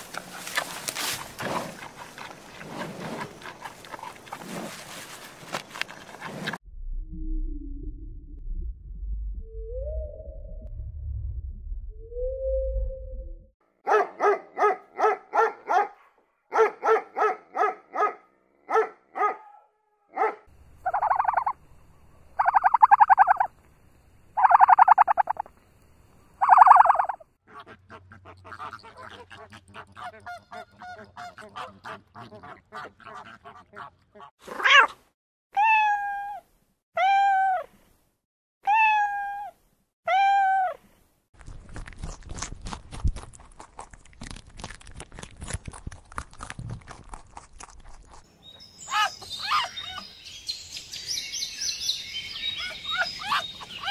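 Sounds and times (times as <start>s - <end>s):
animal calls: 26.4s - 34.9s, 52.4s - 53.9s.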